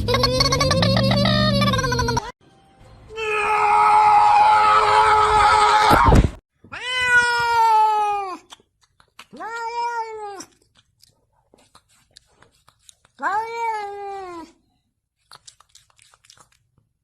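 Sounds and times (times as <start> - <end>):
cat meowing: 6.7 - 8.4
cat yowling: 6.7 - 8.4, 9.4 - 10.5, 13.2 - 14.6.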